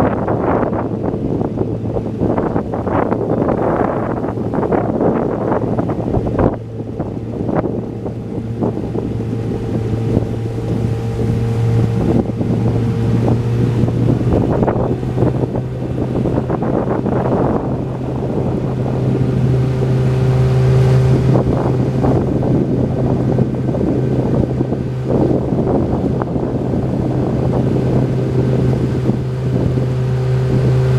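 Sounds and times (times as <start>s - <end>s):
engine humming: 0.0s - 30.9s
wind buffeting microphone: 0.0s - 30.9s.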